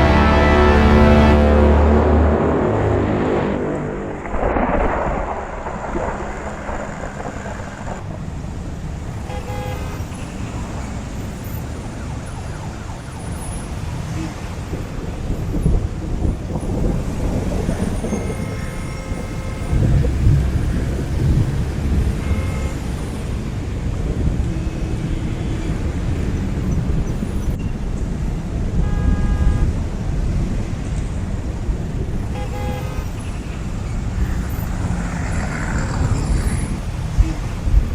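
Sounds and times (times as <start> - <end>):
short horn toots: 0.0 - 5.4
road traffic rumble: 0.0 - 37.9.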